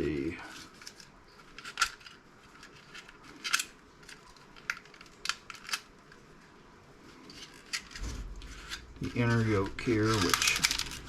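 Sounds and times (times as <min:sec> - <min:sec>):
hand tools clicking and snipping: 0:10.0 - 0:11.0.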